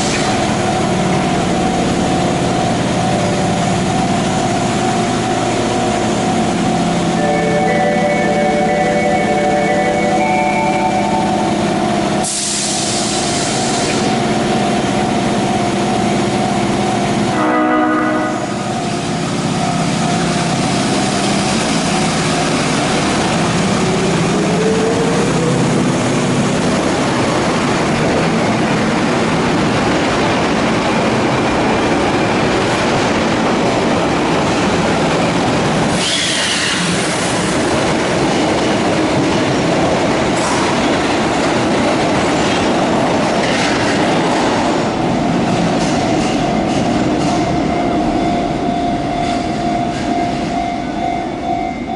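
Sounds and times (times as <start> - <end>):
train rail noise: 0.0 - 51.9
train horn chord: 7.2 - 11.4, 17.3 - 18.7.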